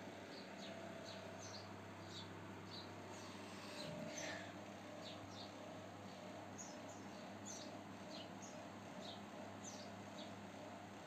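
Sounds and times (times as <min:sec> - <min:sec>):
steady low hum: 0:00.0 - 0:11.0
small bird chirping: 0:00.3 - 0:04.4, 0:06.6 - 0:10.4.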